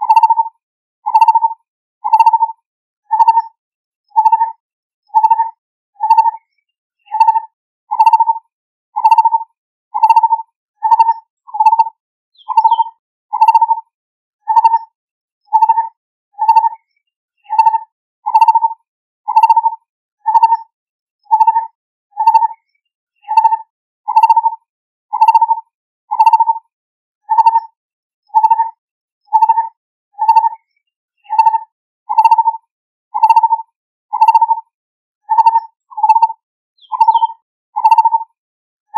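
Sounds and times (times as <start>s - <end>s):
bird calling hollow notes: 9.0s - 9.4s, 10.0s - 13.7s, 19.3s - 19.7s, 23.2s - 24.5s, 26.1s - 26.5s, 31.2s - 32.5s, 33.2s - 33.6s, 34.2s - 34.5s, 35.3s - 38.2s.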